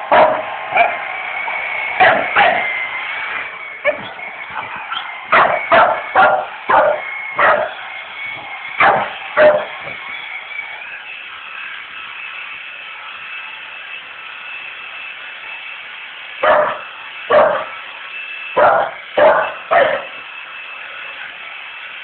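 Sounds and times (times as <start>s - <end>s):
vacuum cleaner humming: 0.0s - 22.0s
dog barking: 0.1s - 1.0s, 2.0s - 2.7s, 4.9s - 7.8s, 8.8s - 10.0s, 16.4s - 17.8s, 18.6s - 20.2s.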